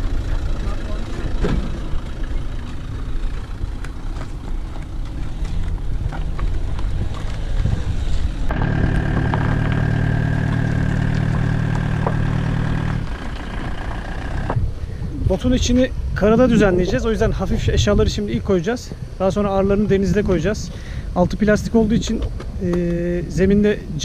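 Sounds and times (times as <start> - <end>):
rumbling: 6.0 - 14.8
scattered clatter: 8.5 - 14.6
motor hum with high whine: 8.5 - 14.7.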